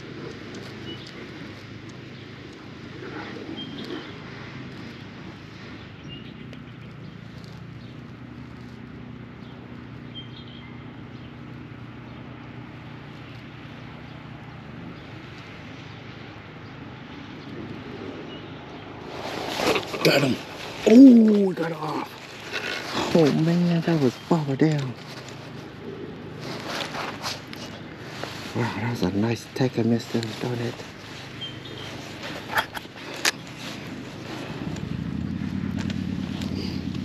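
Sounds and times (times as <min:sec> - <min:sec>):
steady low hum: 0:00.0 - 0:37.0
high bird chirps: 0:31.2 - 0:32.5.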